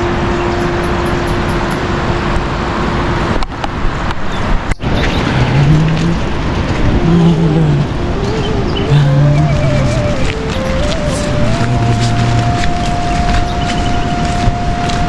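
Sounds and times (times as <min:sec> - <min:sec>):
heavy rain hiss: 0:04.8 - 0:15.0
background music melody: 0:05.5 - 0:15.0.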